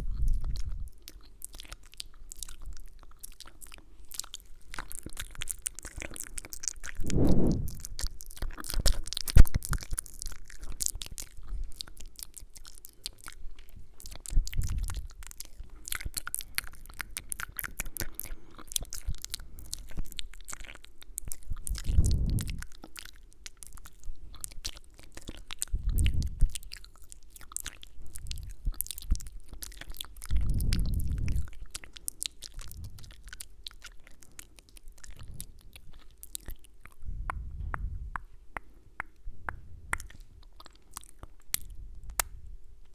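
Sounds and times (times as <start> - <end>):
wet mouth clicks and kisses: 4.8 - 11.6, 12.5 - 23.8, 27.6 - 42.4
soft whooshes against microphone: 7.0 - 7.9, 21.9 - 22.6.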